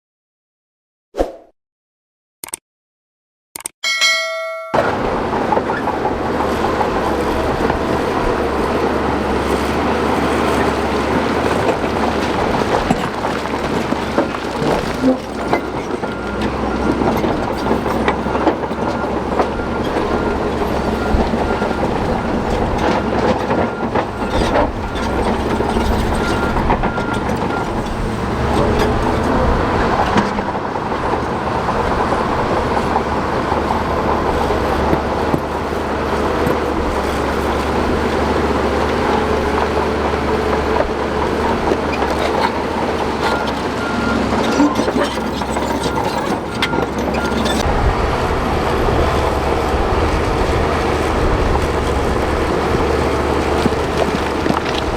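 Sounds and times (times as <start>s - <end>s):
sharp metal clanks: 3.8s - 4.9s
steel tracks clanking over rock: 4.1s - 54.9s
bulldozer diesel engine running: 4.8s - 54.9s.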